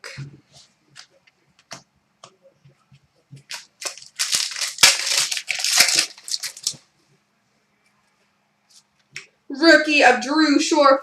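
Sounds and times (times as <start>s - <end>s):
packaging crinkling and rustling: 3.4s - 6.9s.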